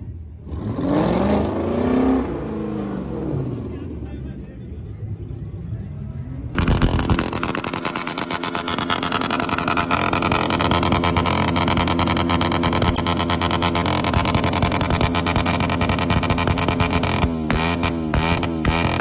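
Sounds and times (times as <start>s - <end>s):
car engine revving hard: 0.5s - 3.5s, 6.6s - 19.0s.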